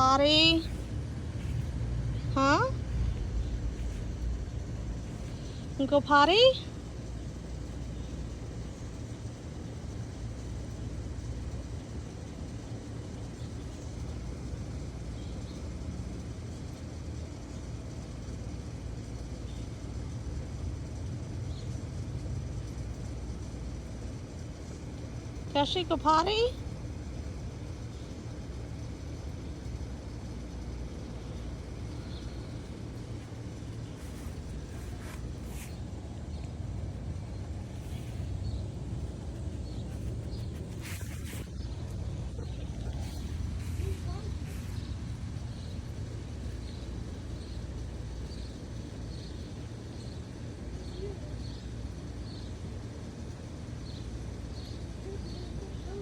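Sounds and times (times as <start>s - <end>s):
low outdoor rumble: 0.0s - 56.0s
faint rustles: 32.0s - 46.8s.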